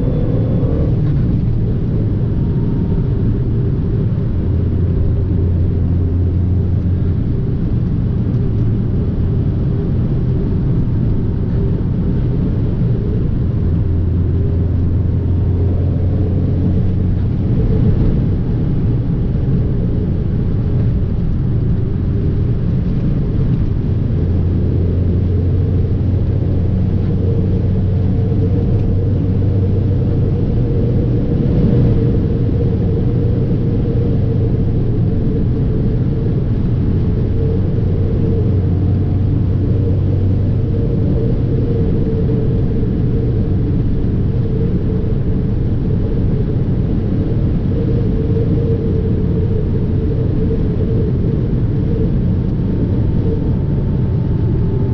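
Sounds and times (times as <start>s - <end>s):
car engine running: 0.0s - 54.9s
road rumble: 0.0s - 54.9s.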